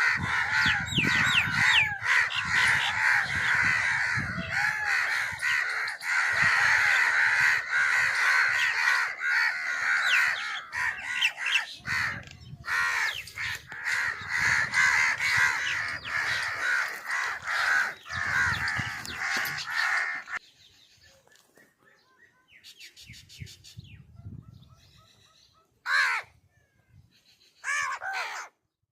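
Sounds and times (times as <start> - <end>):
crows cawing: 0.0 - 20.4, 25.8 - 26.4, 27.6 - 28.6.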